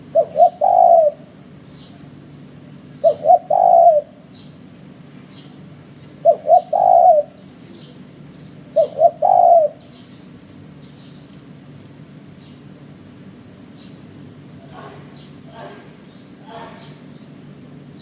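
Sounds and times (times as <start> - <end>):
dove cooing: 0.0 - 2.1, 2.9 - 4.4, 6.1 - 8.1, 8.7 - 10.0.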